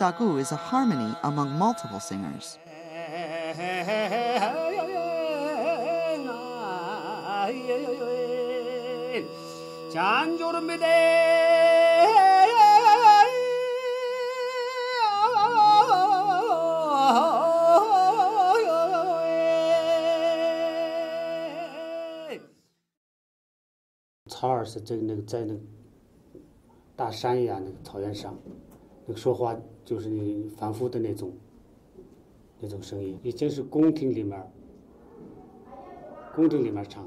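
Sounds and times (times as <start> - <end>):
low vocal drone: 0.0 - 22.6.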